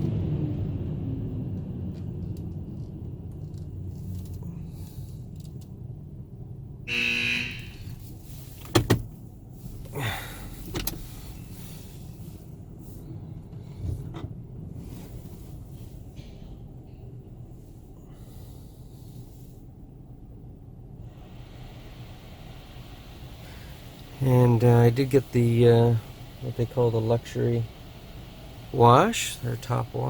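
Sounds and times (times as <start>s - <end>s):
van engine idling rumble: 0.0s - 30.0s
short tone: 6.9s - 7.9s.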